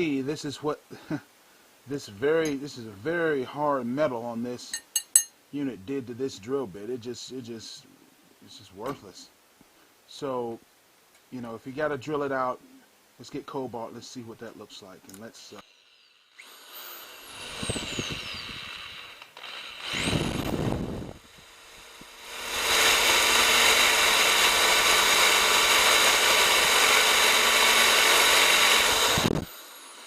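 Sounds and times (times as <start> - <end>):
power drill drilling into metal: 15.6 - 30.0.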